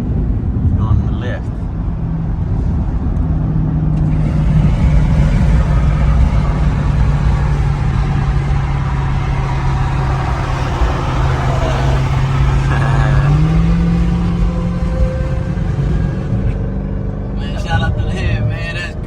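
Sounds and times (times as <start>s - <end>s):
car engine running hard: 0.0s - 19.0s
road rumble: 0.0s - 19.0s.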